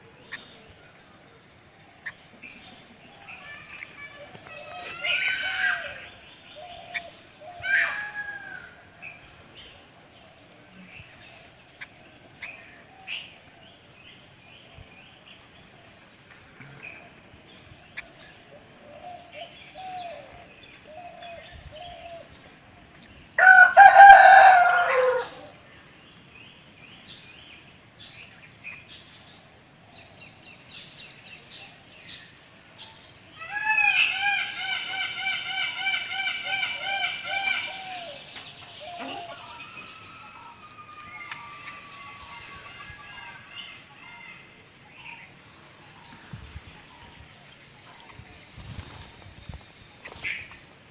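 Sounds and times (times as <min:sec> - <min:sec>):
rooster crowing: 0:23.4 - 0:25.5
loud wavering call: 0:38.9 - 0:42.9.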